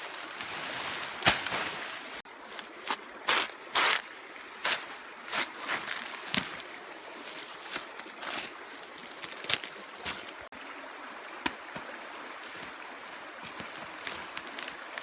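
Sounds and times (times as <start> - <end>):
trickling water: 0.0 - 15.0
sharp clicks or splashes: 11.4 - 11.9.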